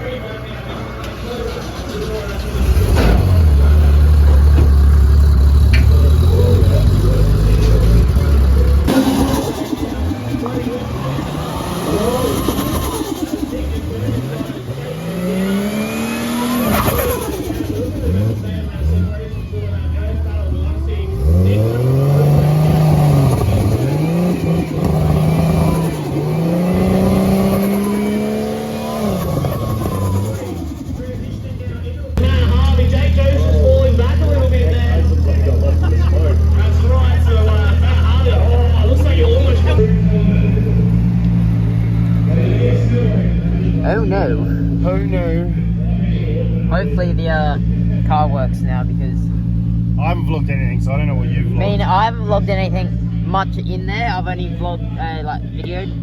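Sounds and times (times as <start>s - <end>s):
car engine running: 0.0s - 56.0s
car engine revving hard: 2.6s - 19.4s, 21.0s - 31.3s.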